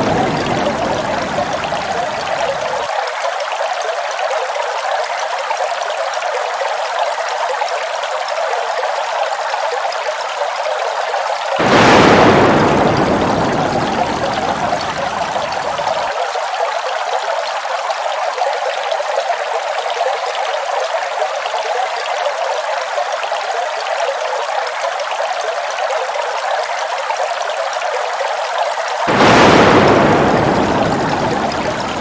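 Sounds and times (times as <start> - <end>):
waterfall rushing water: 0.0 - 3.1, 11.4 - 16.3, 28.8 - 32.0.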